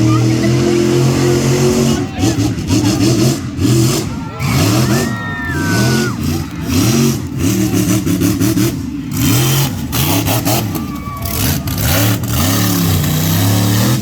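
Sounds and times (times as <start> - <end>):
monster truck engine revving: 0.0 - 14.0.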